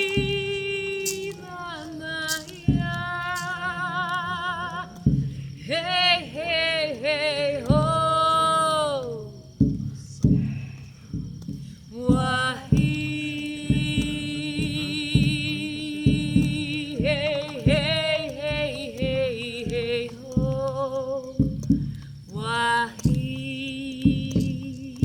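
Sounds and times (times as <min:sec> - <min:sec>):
woman singing held notes: 0:00.0 - 0:09.4
steady low drumbeat: 0:00.0 - 0:25.0.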